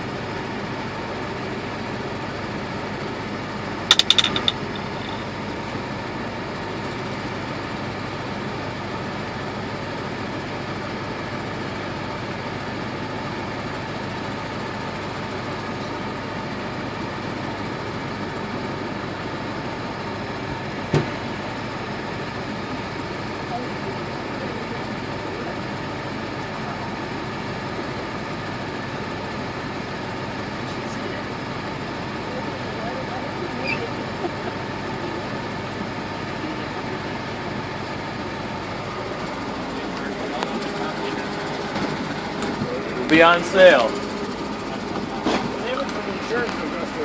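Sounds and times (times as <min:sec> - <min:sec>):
vehicle engine idling: 0:00.0 - 0:47.0
sharp ringing knocks: 0:03.9 - 0:05.3.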